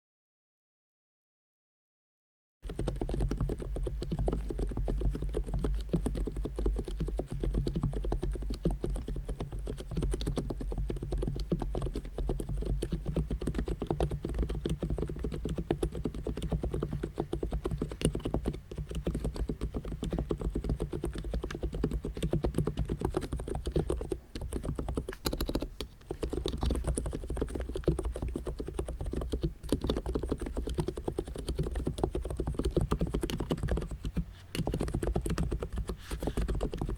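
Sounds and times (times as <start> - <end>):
fast keyboard typing: 2.6 - 36.9.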